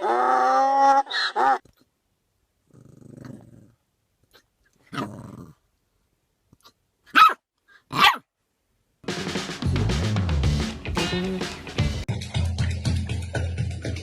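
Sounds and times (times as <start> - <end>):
dog growling: 2.7 - 5.6
dog barking: 7.1 - 8.3.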